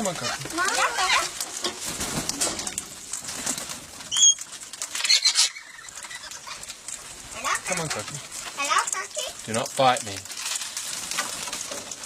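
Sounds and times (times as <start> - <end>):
parrots calling: 0.0 - 1.4, 4.1 - 4.4, 5.0 - 9.1.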